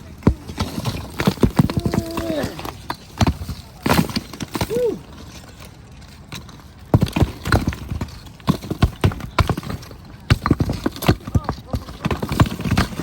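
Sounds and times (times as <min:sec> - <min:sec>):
hard objects knocking and clacking: 0:00.1 - 0:04.8, 0:06.2 - 0:13.0.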